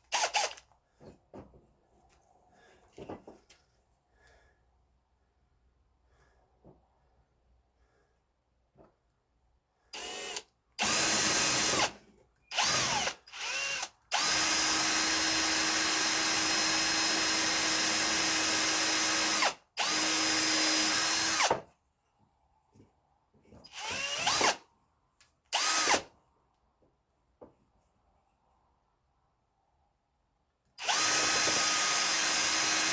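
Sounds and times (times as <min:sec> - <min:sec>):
electric drill motor whining: 0:00.1 - 0:00.6, 0:10.0 - 0:21.6, 0:23.7 - 0:24.6, 0:25.6 - 0:26.1, 0:30.8 - 0:32.9.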